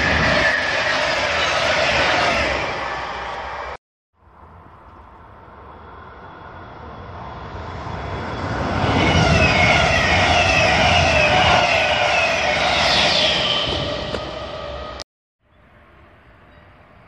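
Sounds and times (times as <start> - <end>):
train whine sliding downward: 0.0 - 3.8, 5.4 - 15.0
train wheels rumbling on rail: 4.5 - 15.0.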